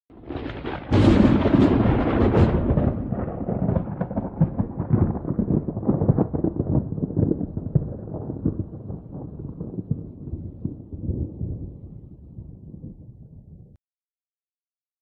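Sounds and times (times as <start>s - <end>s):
thunder rumbling: 0.1s - 13.8s.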